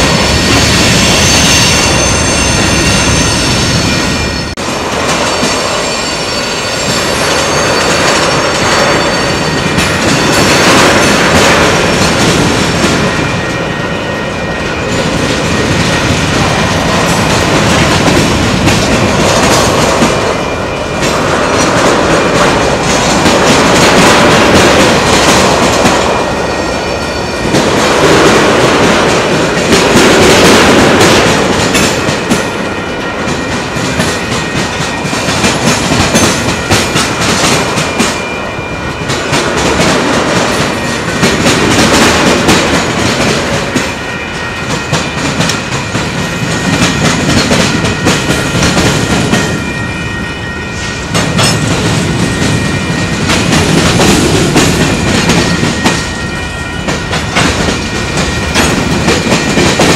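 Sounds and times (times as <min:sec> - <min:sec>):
train wheels clacking on rails: 0:00.0 - 0:59.9.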